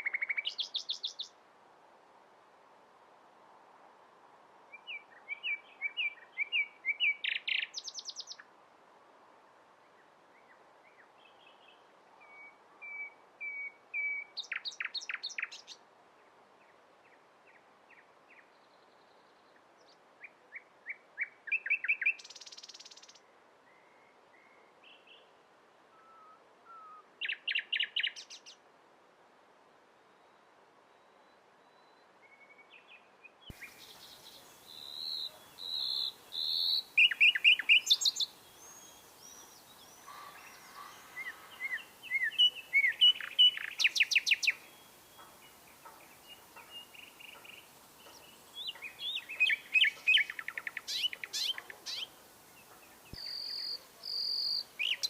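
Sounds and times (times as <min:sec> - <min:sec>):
nightingale singing: 0:00.0 - 0:01.4, 0:04.7 - 0:08.5, 0:10.3 - 0:15.8, 0:20.2 - 0:25.3, 0:26.0 - 0:28.6, 0:30.2 - 0:55.0.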